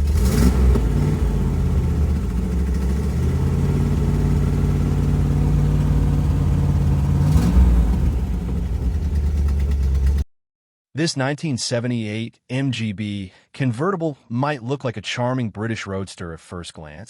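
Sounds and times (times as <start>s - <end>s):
car engine idling: 0.0s - 10.2s
engine throttle blips: 0.0s - 10.2s.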